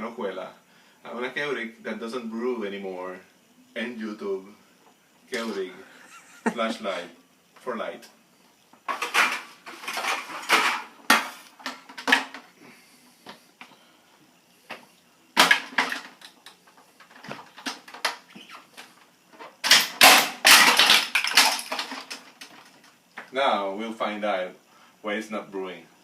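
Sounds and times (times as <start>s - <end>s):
hard plastic parts clattering: 8.8s - 12.5s, 15.4s - 22.9s.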